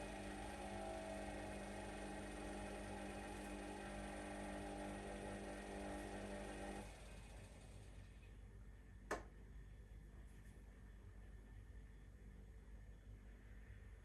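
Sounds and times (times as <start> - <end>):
washing machine motor humming: 0.0 - 8.2.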